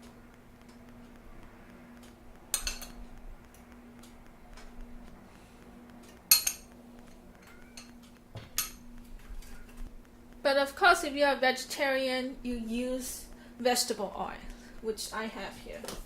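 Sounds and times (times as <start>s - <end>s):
faint steady hum: 0.0s - 16.0s
metal spoon clinking on cookware: 2.5s - 3.0s, 6.3s - 6.7s, 7.4s - 8.0s.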